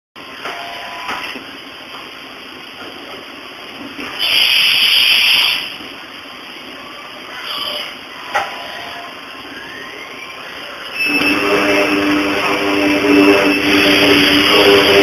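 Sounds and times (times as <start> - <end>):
loud hiss: 4.0 - 5.9, 10.4 - 15.0
milling machine cutting steel: 11.0 - 15.0.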